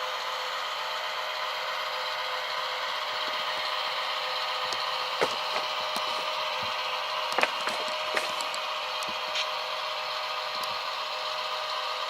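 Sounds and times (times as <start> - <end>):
diesel engine sound from small speakers: 0.0 - 12.0.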